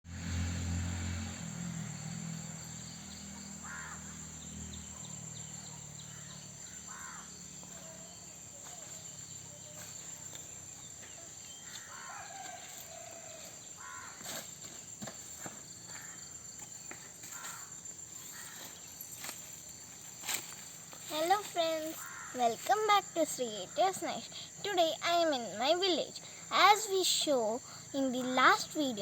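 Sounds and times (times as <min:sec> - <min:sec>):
insect drone: 0:00.1 - 0:29.0
bird harsh calls: 0:03.6 - 0:09.8, 0:21.8 - 0:22.4.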